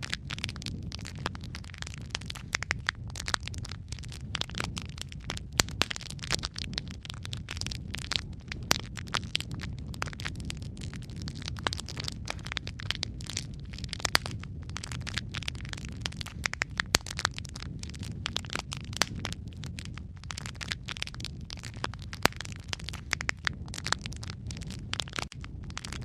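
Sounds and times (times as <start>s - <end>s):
fire crackling and popping: 0.0s - 26.0s.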